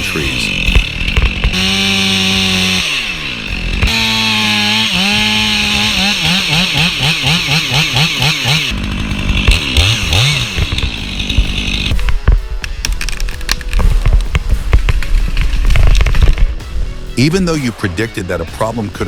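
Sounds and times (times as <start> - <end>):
chainsaw revving: 0.0 - 12.1.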